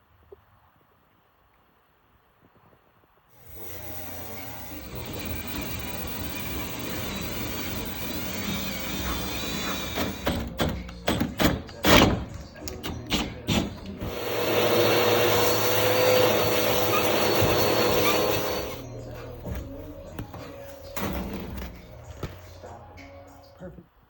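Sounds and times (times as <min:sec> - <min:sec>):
power drill whining: 0:03.4 - 0:10.7, 0:12.8 - 0:22.2.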